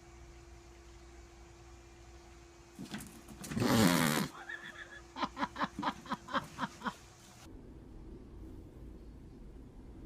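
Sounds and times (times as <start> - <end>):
faint low rumble: 7.4 - 10.0.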